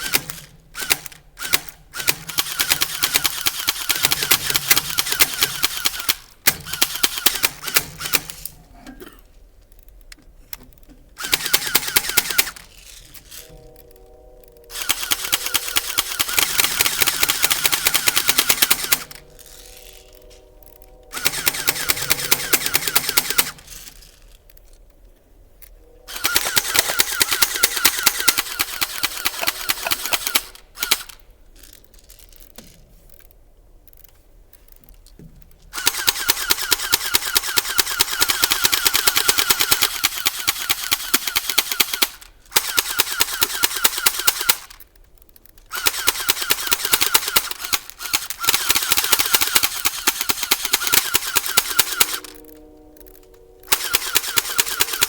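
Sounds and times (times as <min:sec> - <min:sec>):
airsoft guns firing full auto: 0:00.0 - 0:08.5, 0:11.2 - 0:12.7, 0:14.7 - 0:19.8, 0:21.1 - 0:23.8, 0:26.1 - 0:31.2, 0:35.7 - 0:44.9, 0:45.7 - 0:52.5, 0:53.6 - 0:55.0.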